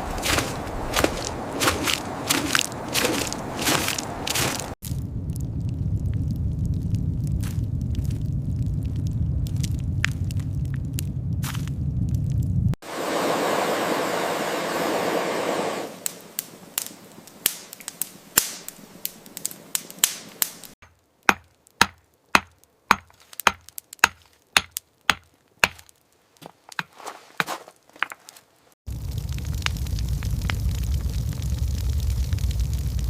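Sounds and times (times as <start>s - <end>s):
loud rushing noise: 12.8s - 16.0s.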